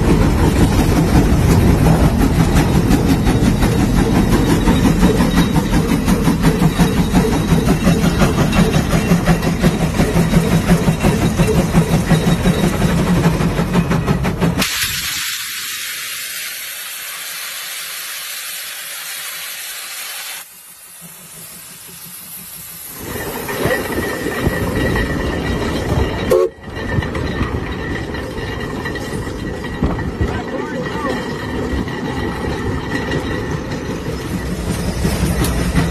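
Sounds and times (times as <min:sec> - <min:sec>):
steam hissing: 0:00.0 - 0:25.3.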